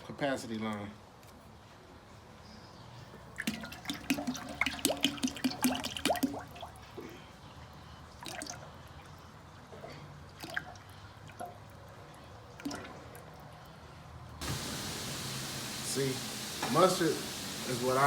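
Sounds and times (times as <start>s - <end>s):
liquid dripping and squirting: 3.4s - 9.2s, 10.3s - 13.8s.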